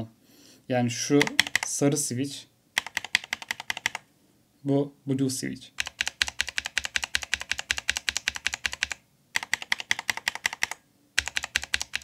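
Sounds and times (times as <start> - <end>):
mechanical keyboard keys clicking: 1.2 - 1.7, 2.8 - 4.0, 5.8 - 12.0.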